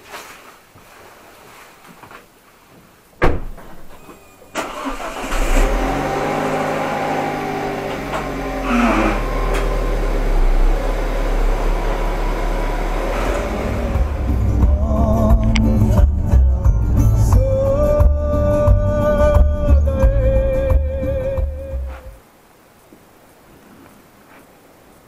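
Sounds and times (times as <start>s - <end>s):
sharp thump: 3.2s - 3.8s
car engine starting and idling: 4.5s - 17.8s.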